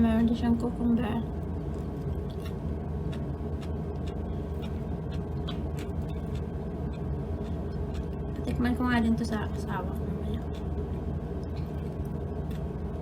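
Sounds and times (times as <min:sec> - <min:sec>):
low hum: 0:00.0 - 0:13.0
chewing: 0:01.6 - 0:08.5, 0:10.4 - 0:10.8.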